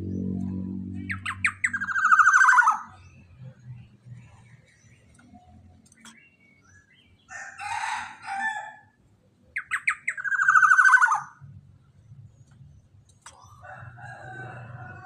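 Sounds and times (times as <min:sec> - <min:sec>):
pulsed bird call falling in pitch: 0:00.0 - 0:02.9
harsh bird call: 0:00.9 - 0:03.0, 0:09.6 - 0:11.4.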